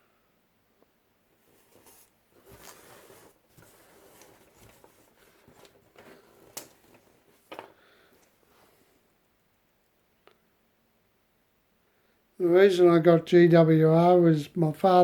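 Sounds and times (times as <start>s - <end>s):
handling rustling and scraping: 1.3s - 9.1s.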